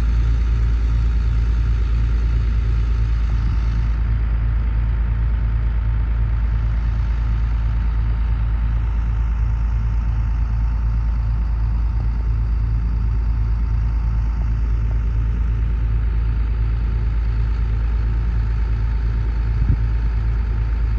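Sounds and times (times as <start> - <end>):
diesel engine rumbling: 0.0 - 20.9.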